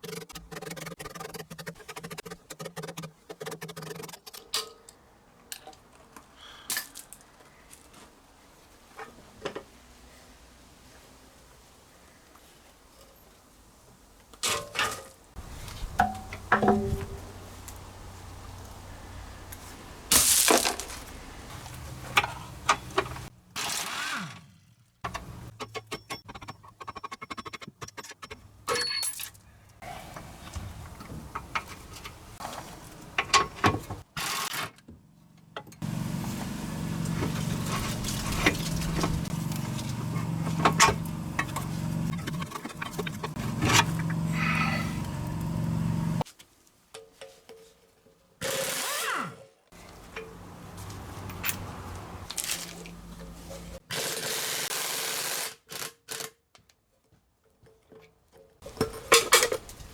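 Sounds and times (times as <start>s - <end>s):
metal tools clinking and knocking: 25.1s - 29.4s, 49.8s - 53.8s, 57.9s - 59.9s.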